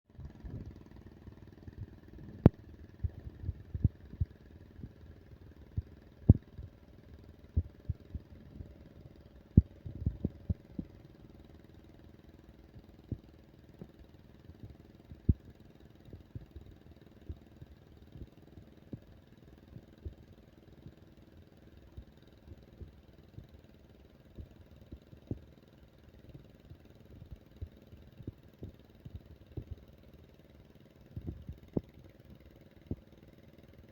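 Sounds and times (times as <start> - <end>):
tractor engine running: 0.1 - 33.9.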